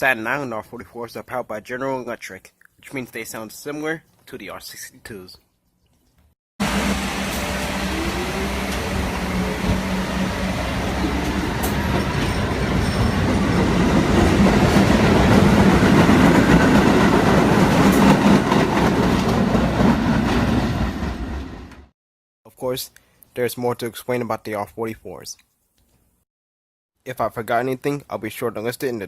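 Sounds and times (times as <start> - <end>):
train motor whine: 6.6 - 15.8.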